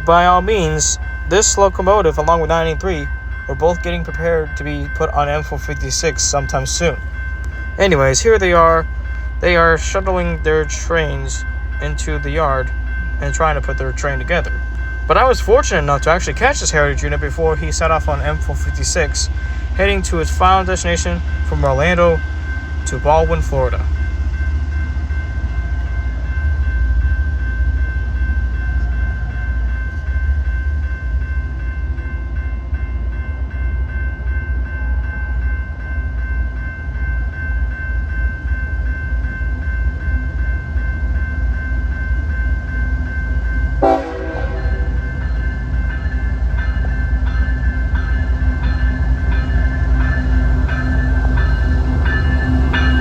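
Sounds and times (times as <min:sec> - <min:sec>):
diesel locomotive rumble: 0:00.0 - 0:53.0
high whine: 0:42.2 - 0:53.0.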